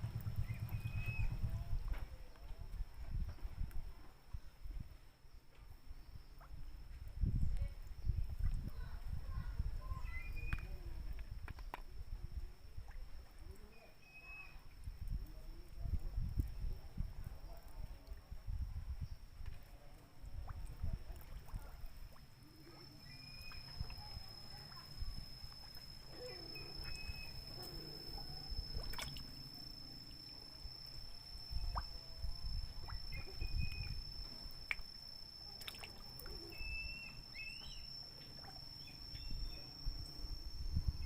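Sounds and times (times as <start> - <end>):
steady high-pitched whine: 0.0 - 4.4, 6.9 - 41.0
low uneven rumble: 0.0 - 5.0, 14.6 - 41.0
water dripping and sloshing: 19.4 - 38.8.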